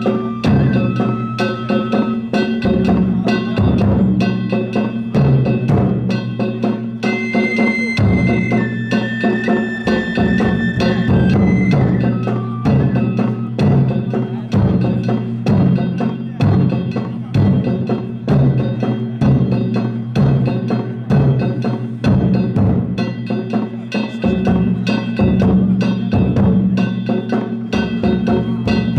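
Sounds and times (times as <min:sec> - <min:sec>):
high flute line: 0:00.0 - 0:03.1, 0:07.0 - 0:14.4
hand gongs and drumsticks striking: 0:00.0 - 0:28.9
taiko drums beating heavily: 0:00.0 - 0:28.9.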